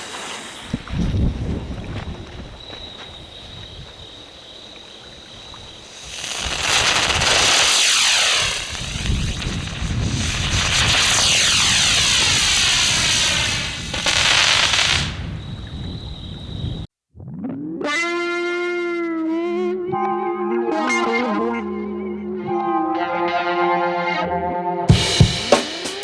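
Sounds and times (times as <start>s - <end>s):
spinning firework rushing hiss: 0.0s - 0.8s, 5.8s - 15.4s.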